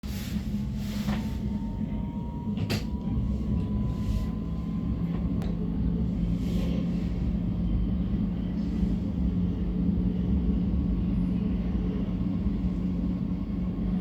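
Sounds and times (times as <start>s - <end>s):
train rumbling slowly: 0.0s - 14.0s.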